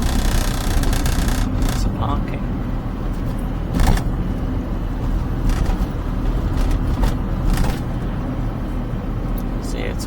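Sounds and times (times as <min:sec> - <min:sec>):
car engine and road noise: 0:00.0 - 0:10.0.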